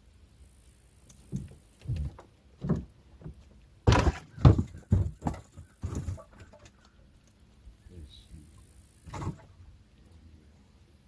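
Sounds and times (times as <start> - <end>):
thumps and knocks in a boat: 1.3 - 6.8, 9.1 - 9.5.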